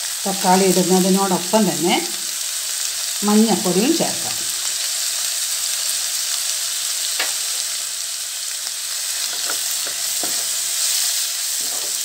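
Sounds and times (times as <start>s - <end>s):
onions sizzling in hot oil: 0.0s - 12.0s
spatula scraping pan: 9.2s - 12.0s.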